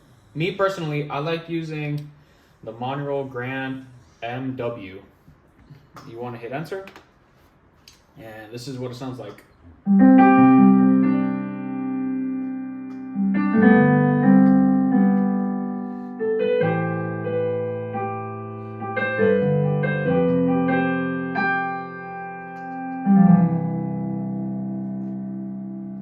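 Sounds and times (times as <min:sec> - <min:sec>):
piano chords: 0:09.8 - 0:26.0.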